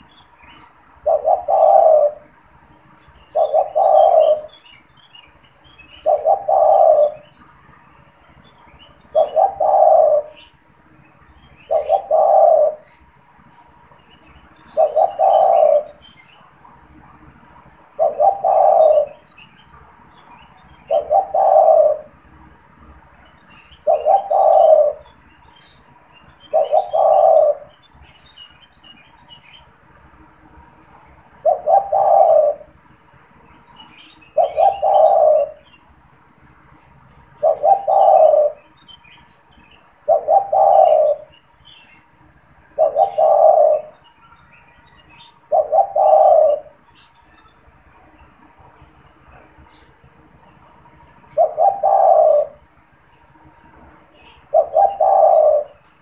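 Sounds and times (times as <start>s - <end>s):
dove cooing: 0.4s - 2.4s, 3.0s - 4.8s, 5.9s - 7.6s, 9.1s - 10.6s, 11.6s - 13.7s, 14.3s - 16.5s, 17.9s - 19.3s, 20.8s - 22.2s, 23.6s - 25.8s, 26.4s - 28.3s, 31.4s - 32.8s, 33.9s - 35.7s, 36.8s - 38.7s, 40.0s - 42.0s, 42.7s - 44.0s, 45.0s - 47.1s, 51.2s - 52.7s, 54.2s - 55.9s.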